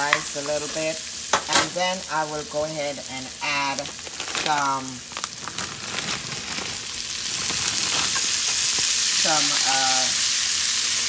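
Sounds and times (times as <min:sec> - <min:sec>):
garlic and onion sizzling in a pan: 0:00.0 - 0:11.0.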